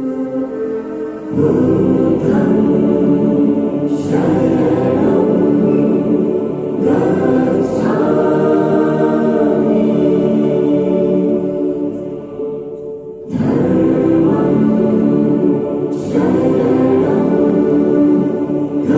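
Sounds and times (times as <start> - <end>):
background music: 0.0 - 18.9
choir singing held notes: 0.0 - 18.9.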